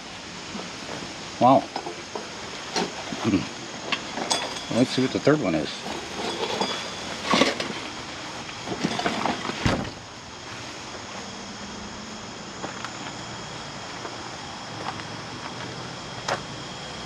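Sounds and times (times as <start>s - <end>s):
faint steady hum: 0.0s - 17.0s
objects rustling and clattering: 0.5s - 11.0s.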